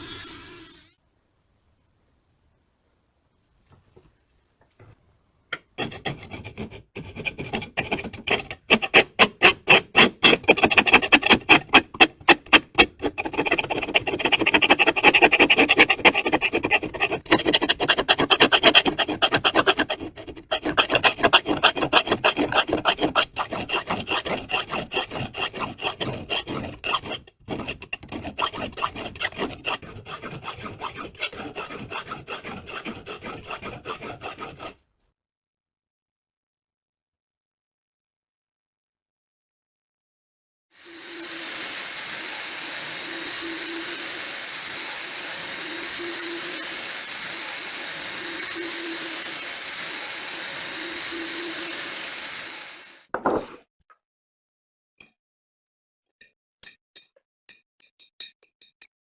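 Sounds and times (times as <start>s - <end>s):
hand rasp strokes on metal: 5.8s - 34.8s, 45.7s - 52.9s.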